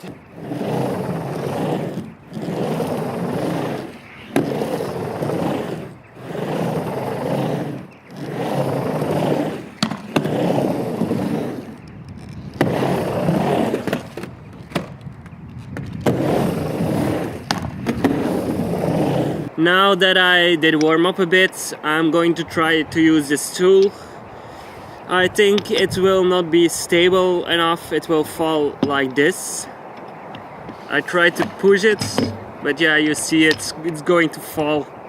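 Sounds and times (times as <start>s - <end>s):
skateboard wheels rolling: 0.0s - 35.0s
skateboard clacking on ramp: 1.0s - 11.8s, 12.6s - 19.1s, 30.0s - 32.6s.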